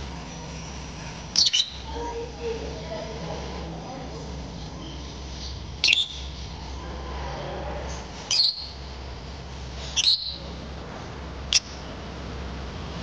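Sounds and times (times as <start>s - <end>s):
lovebirds shrill calls: 1.3s - 1.9s, 5.8s - 6.3s, 8.3s - 8.8s, 9.9s - 10.4s.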